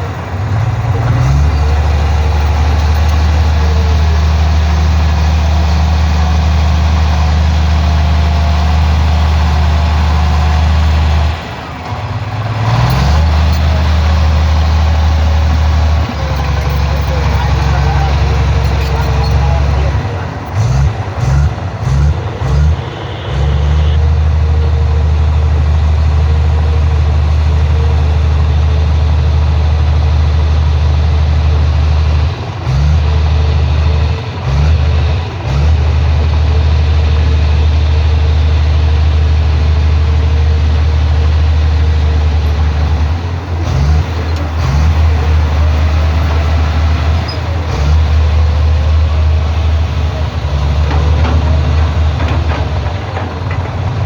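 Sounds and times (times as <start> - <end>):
diesel engine rumbling: 0.0 - 54.0.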